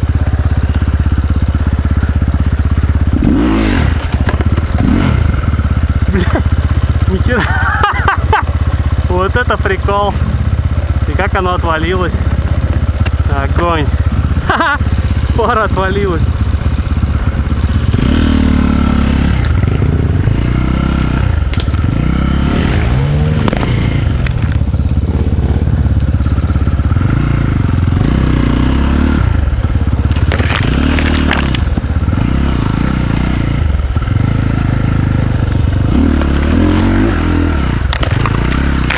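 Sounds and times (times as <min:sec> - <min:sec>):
dirt bike engine revving: 0:00.0 - 0:38.9
knocks and clatters: 0:03.8 - 0:05.3, 0:29.9 - 0:34.3, 0:35.9 - 0:38.9.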